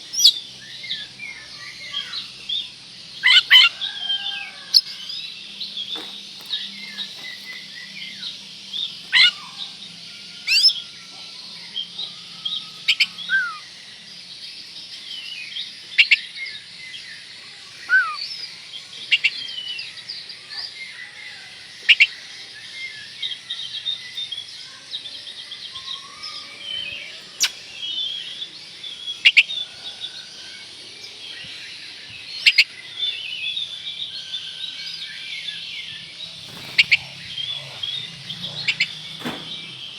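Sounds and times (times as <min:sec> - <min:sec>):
high twittering: 0:03.1 - 0:10.9, 0:36.0 - 0:39.9.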